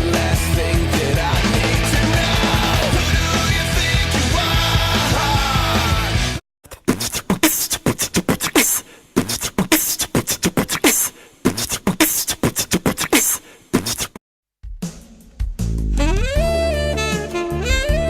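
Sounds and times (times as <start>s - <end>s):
beatboxing: 6.7s - 14.2s.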